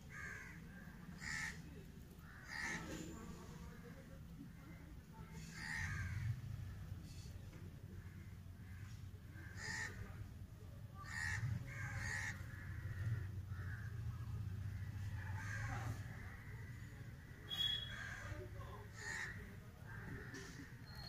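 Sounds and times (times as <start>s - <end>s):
birds calling: 11.0s - 21.0s.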